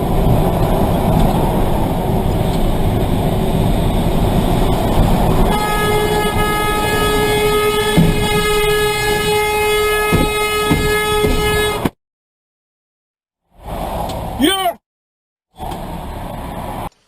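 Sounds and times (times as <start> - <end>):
vehicle rumble: 0.0 - 11.9, 13.6 - 14.5, 15.6 - 17.0
long vehicle horn: 5.4 - 12.0.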